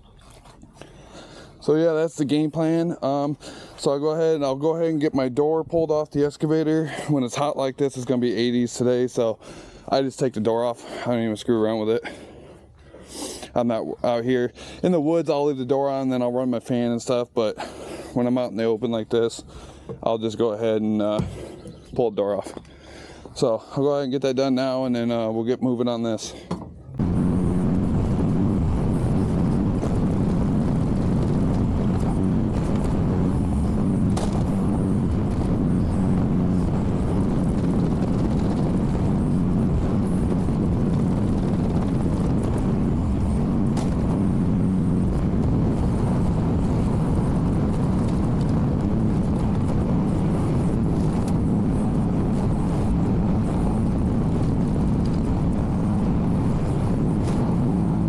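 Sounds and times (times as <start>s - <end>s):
earthmoving machine engine running: 26.9s - 58.0s.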